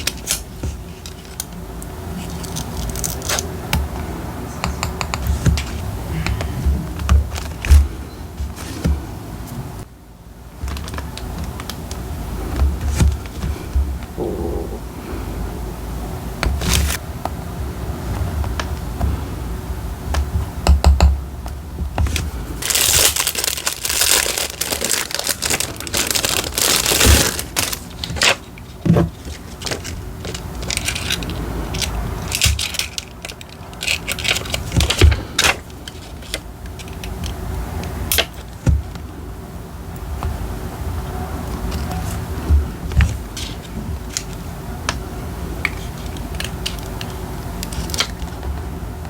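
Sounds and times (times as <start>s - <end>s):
tools tapping on desk: 4.6s - 7.2s
paper crinkling and tearing: 22.6s - 28.4s.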